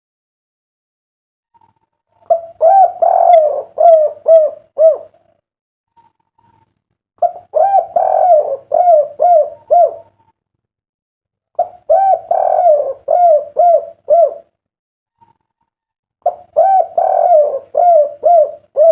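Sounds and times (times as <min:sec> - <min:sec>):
dove cooing: 0:01.6 - 0:05.3, 0:07.2 - 0:10.2, 0:11.6 - 0:14.5, 0:16.2 - 0:18.9.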